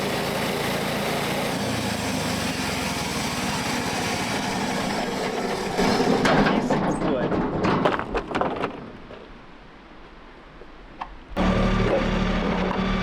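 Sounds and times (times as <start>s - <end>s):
small gasoline engine humming: 0.0s - 6.6s, 11.4s - 13.0s.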